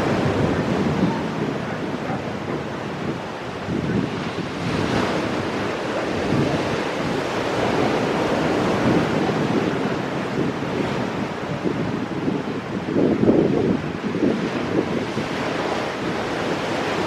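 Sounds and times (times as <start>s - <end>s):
ocean waves breaking on rocks: 0.0s - 17.0s
wind buffeting microphone: 0.0s - 17.0s.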